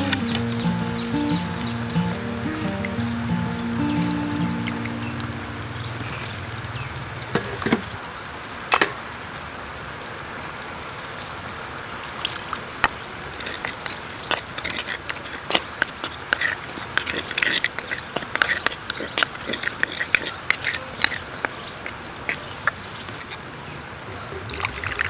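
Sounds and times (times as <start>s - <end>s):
background music low held notes: 0.0s - 7.0s
creek running: 0.0s - 8.0s.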